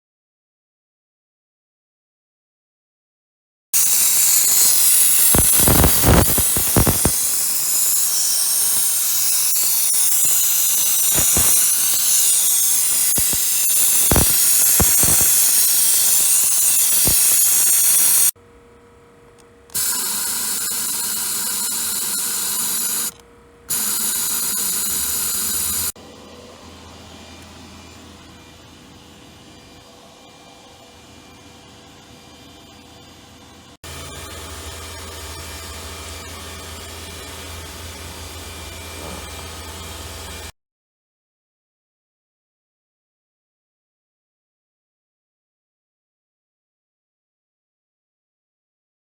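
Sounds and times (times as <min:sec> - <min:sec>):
pressure washer spraying hiss: 0:03.8 - 0:18.4
steady tone: 0:04.1 - 0:40.5.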